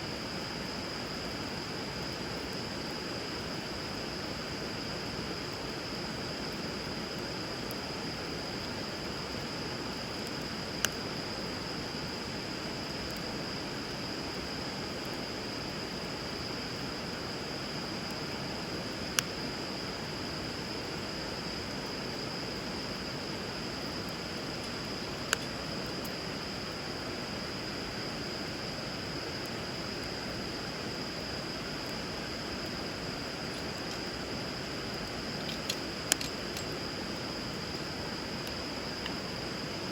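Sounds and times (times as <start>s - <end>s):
wood fire popping: 31.3s - 39.4s.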